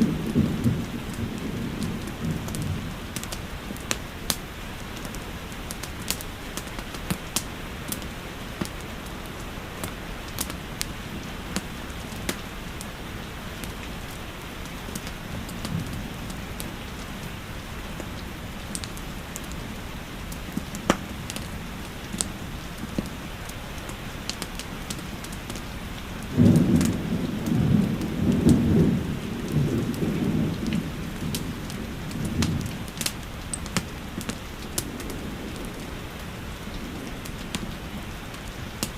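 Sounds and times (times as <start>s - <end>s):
thunder rumbling: 0.0s - 4.3s, 26.2s - 38.9s
fireplace crackling: 0.0s - 38.9s
steady rain: 0.0s - 38.9s.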